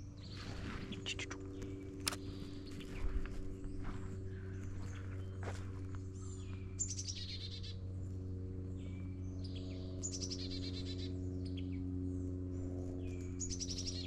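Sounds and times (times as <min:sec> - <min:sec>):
other birds chirping: 0:00.0 - 0:07.8
steady low hum: 0:00.0 - 0:14.0.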